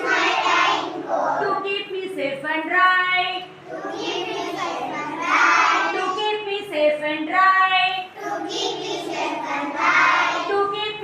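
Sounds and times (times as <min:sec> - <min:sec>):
children singing in unison: 0:00.0 - 0:01.4, 0:08.2 - 0:10.5.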